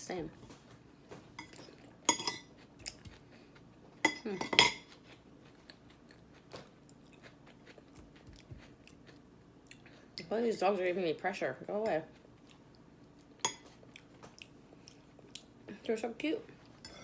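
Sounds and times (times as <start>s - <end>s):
person chewing salad: 0.7s - 10.2s, 12.0s - 15.7s.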